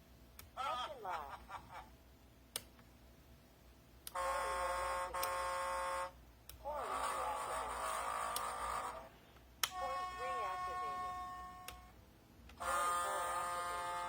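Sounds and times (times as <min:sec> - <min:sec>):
buzzy electronic ship's horn: 0:04.1 - 0:06.2, 0:06.8 - 0:09.1, 0:09.7 - 0:11.9, 0:12.6 - 0:14.0.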